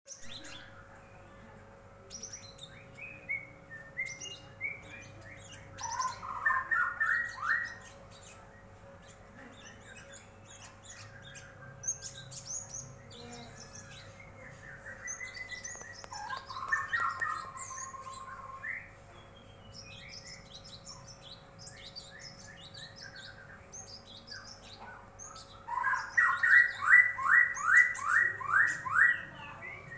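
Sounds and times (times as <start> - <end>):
birds chirping: 0.1 - 29.9
faint hum: 0.1 - 29.9
fast repeated bird notes: 2.3 - 8.2, 10.3 - 21.0, 25.4 - 29.9.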